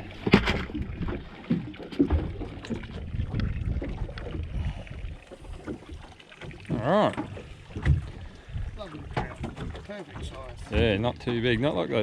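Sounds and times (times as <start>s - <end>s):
wind buffeting microphone: 2.1s - 5.2s.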